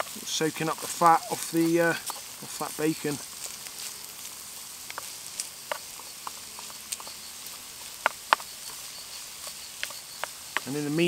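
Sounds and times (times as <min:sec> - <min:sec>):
sharp fat pops: 0:03.5 - 0:08.8, 0:09.4 - 0:10.8.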